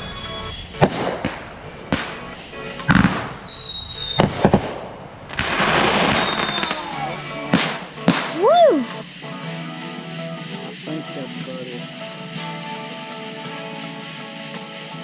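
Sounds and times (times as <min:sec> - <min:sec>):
firework bangs: 0:00.0 - 0:08.7
firework whistle: 0:00.0 - 0:09.0
firework crackling: 0:00.0 - 0:15.0.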